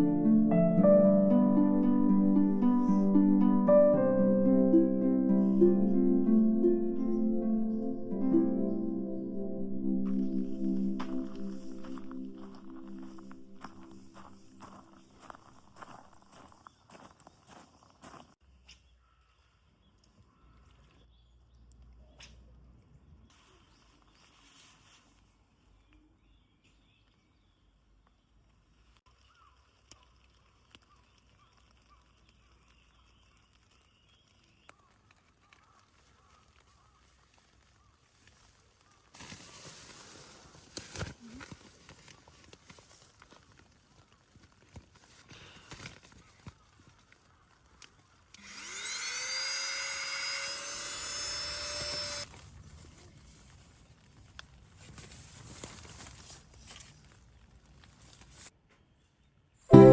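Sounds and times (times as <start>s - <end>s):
small motor whining: 48.4s - 52.3s.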